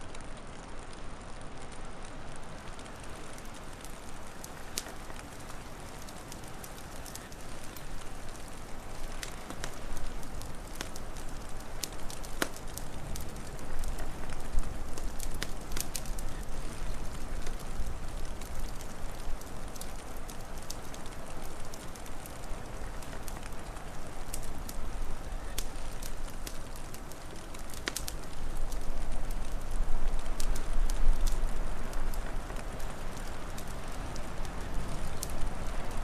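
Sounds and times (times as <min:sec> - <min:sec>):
wood fire crackling and popping: 0:00.0 - 0:36.0.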